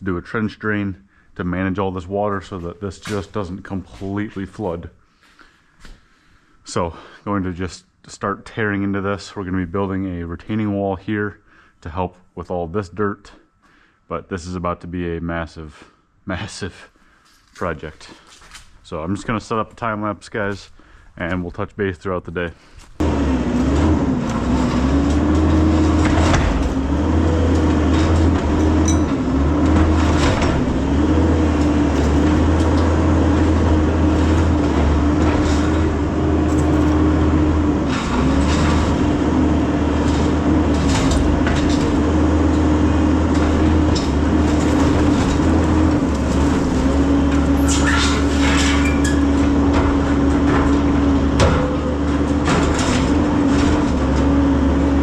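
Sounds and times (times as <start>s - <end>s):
scrapes and clanks: 22.8s - 54.8s
diesel engine of earthmover digging: 23.0s - 55.0s.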